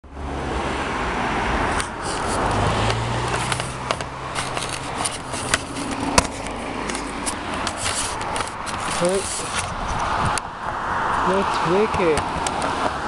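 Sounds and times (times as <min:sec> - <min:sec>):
low engine hum: 0:00.0 - 0:11.4
traffic and tyres rushing: 0:00.0 - 0:13.0
sharp clicks and rattles: 0:01.8 - 0:10.5.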